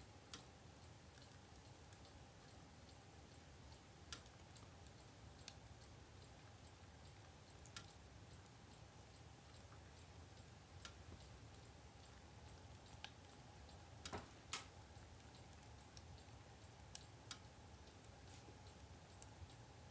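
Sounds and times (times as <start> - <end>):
faint steady hum: 0.0 - 19.9.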